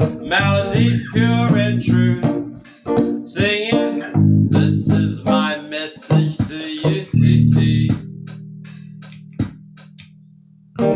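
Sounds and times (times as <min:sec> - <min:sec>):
bass line: 0:00.0 - 0:02.5, 0:04.2 - 0:05.4, 0:07.1 - 0:10.9
strummed guitar: 0:00.0 - 0:10.9
sharp click: 0:09.0 - 0:10.2.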